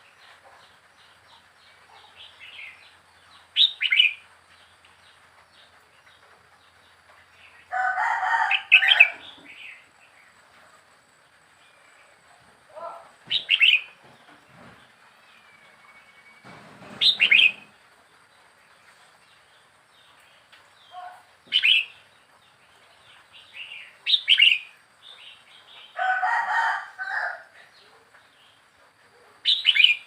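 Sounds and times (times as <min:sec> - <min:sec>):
bird calling in bright phrases: 0:01.9 - 0:04.3, 0:12.8 - 0:14.0, 0:15.3 - 0:17.8, 0:20.8 - 0:22.1, 0:23.4 - 0:26.0, 0:29.2 - 0:30.0
rough low bird call: 0:16.0 - 0:17.8.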